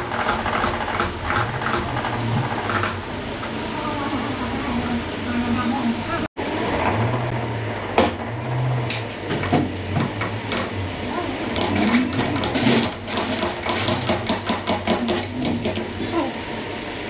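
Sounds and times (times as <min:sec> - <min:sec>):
low machine hum: 0:00.0 - 0:14.2
metal tools clicking and tapping: 0:00.0 - 0:17.0.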